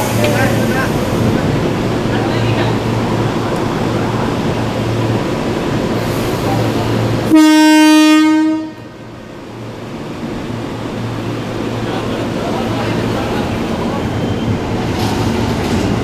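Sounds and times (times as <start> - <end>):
train rumbling: 0.0 - 16.0
train horn blast: 7.3 - 9.0.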